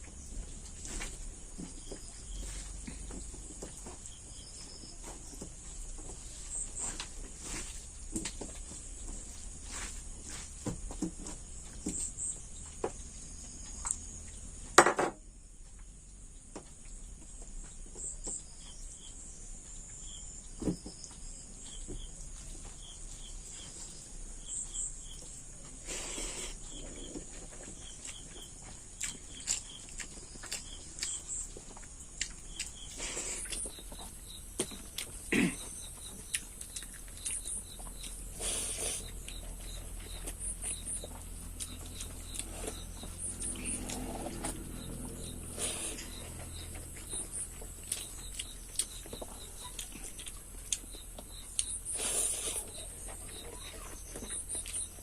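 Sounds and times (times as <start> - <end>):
mouth noises of eating: 25.6 - 55.0
faint high chirps: 32.2 - 55.0.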